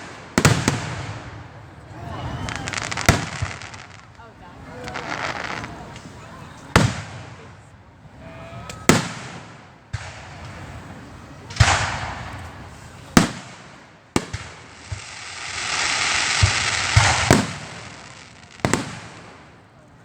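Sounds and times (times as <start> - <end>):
fireworks exploding: 0.0 - 7.6, 8.8 - 19.9
hiss: 14.7 - 18.3.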